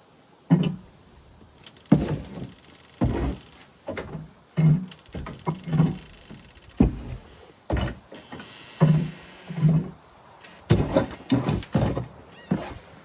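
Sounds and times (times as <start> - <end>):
straw bedding thuds and scrapes: 0.5 - 13.0.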